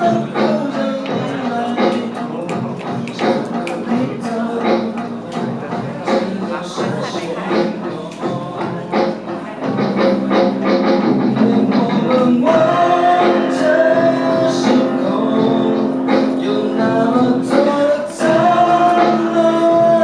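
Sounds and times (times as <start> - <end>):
band playing with singing: 0.0 - 20.0.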